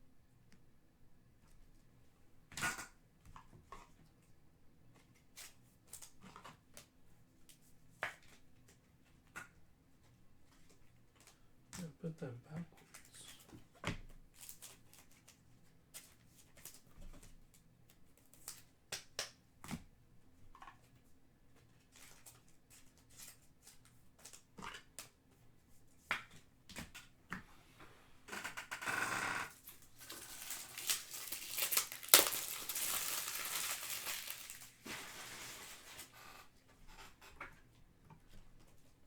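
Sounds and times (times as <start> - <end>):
wrapper crinkling and tearing: 29.6 - 36.2.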